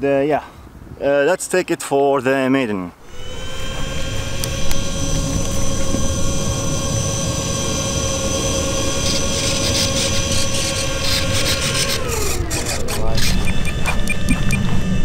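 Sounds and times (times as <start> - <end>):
model plane propellers whining: 3.0 - 15.0
rushing air noise: 3.0 - 15.0.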